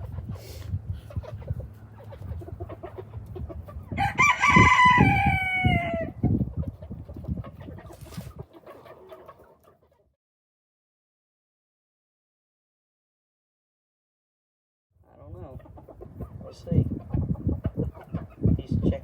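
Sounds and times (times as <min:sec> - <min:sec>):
hens clucking: 0:00.0 - 0:10.2, 0:15.0 - 0:19.0
rooster crowing: 0:04.0 - 0:06.2.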